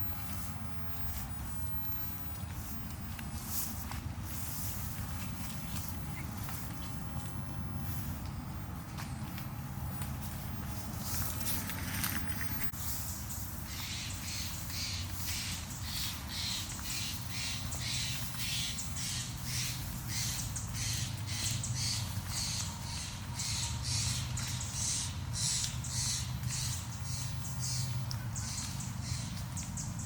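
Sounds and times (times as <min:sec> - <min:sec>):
low steady rumble: 0:00.0 - 0:30.0
footsteps crunching on gravel: 0:02.3 - 0:22.6.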